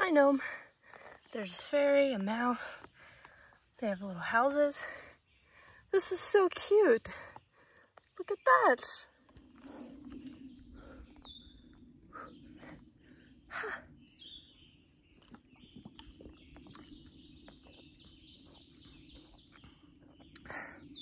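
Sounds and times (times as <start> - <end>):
woodland birds calling: 7.0 - 21.0.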